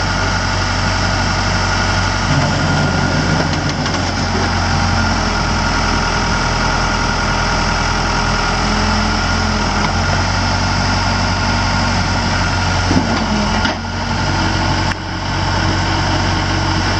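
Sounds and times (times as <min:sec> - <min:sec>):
diesel engine idling: 0:00.0 - 0:16.9.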